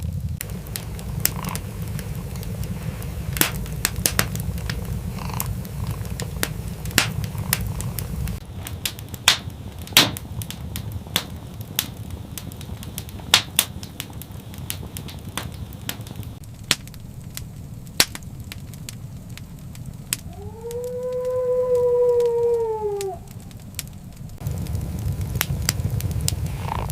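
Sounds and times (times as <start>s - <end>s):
wood fire crackling: 0.0s - 26.9s
long animal call: 0.8s - 3.0s, 20.2s - 23.4s.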